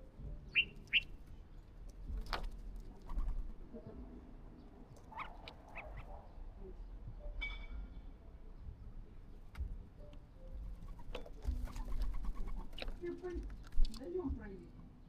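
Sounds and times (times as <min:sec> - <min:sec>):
birds calling: 0:00.0 - 0:02.3, 0:04.6 - 0:06.5, 0:10.4 - 0:14.2.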